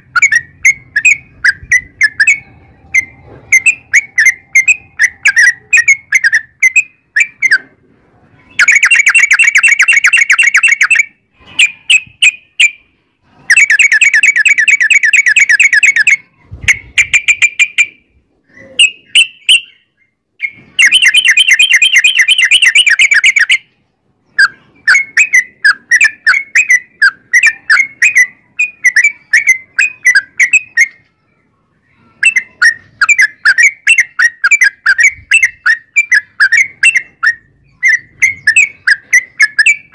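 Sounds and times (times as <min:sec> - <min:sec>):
bird rolling trills: 0:00.0 - 0:07.8, 0:20.4 - 0:23.7, 0:31.9 - 0:39.9
bulbul singing: 0:00.0 - 0:07.8, 0:08.4 - 0:39.9.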